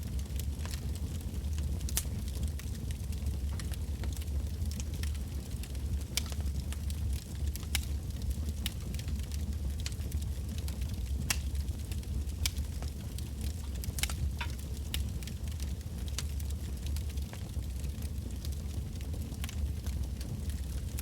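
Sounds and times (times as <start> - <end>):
bonfire crackling and popping: 0.0 - 21.0
low rumble of flames: 0.0 - 21.0.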